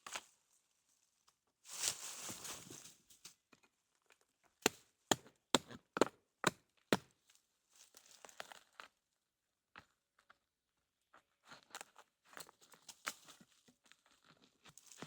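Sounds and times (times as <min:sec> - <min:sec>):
branches and leaves rustling: 0:01.6 - 0:03.4.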